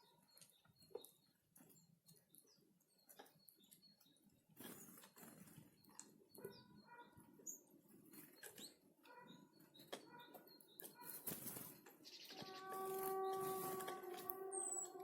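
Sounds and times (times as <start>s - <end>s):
bird wings fluttering: 11.1s - 11.8s.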